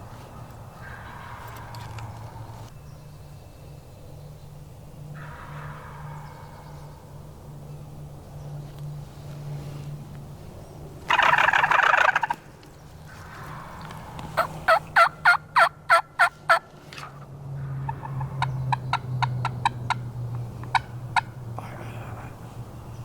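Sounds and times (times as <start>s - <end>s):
turkey gobbling: 11.1s - 12.4s, 13.1s - 16.6s, 20.6s - 21.3s
turkey yelps: 11.1s - 12.4s, 14.4s - 16.6s.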